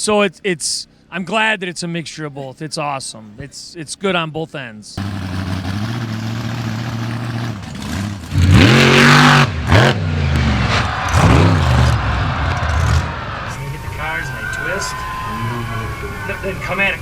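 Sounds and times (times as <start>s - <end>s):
monster truck engine revving: 5.0s - 14.0s.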